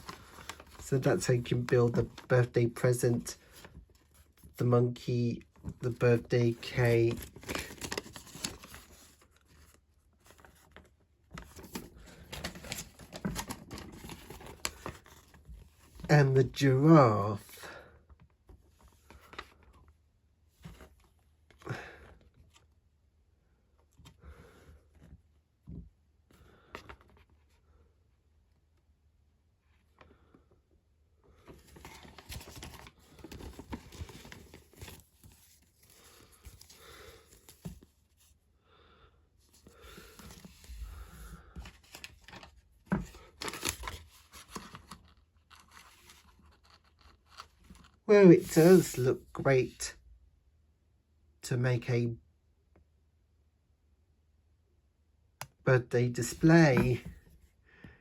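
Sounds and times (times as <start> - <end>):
paper rustling: 0.0 - 2.5, 5.8 - 16.1, 31.5 - 37.9, 39.6 - 49.0, 56.2 - 57.2.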